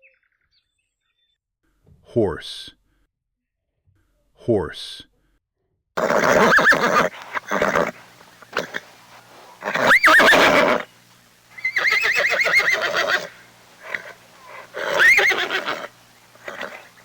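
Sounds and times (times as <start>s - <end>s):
horse neighing: 6.0s - 17.0s.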